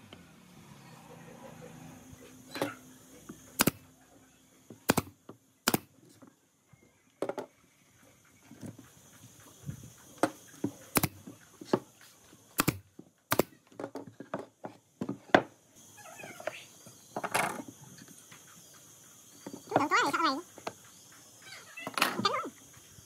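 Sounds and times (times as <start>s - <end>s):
nail gun firing: 3.6s - 3.9s, 4.8s - 5.9s, 10.2s - 11.2s, 12.6s - 13.6s.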